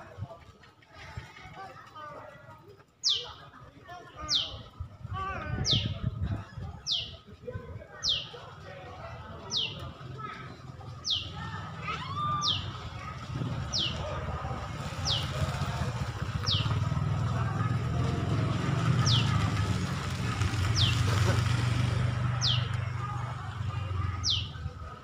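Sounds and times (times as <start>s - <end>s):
bird chirping high: 3.0s - 3.4s, 4.3s - 4.6s, 11.0s - 11.4s, 12.1s - 12.9s, 13.7s - 14.0s, 15.0s - 15.3s, 19.0s - 19.3s, 22.4s - 22.7s, 24.2s - 24.6s.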